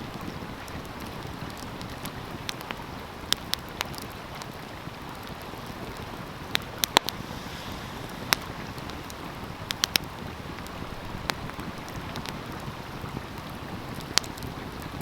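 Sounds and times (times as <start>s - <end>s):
wood fire crackling: 0.0s - 15.0s
stream rushing: 4.2s - 14.9s
sharp fire pops: 6.5s - 12.5s.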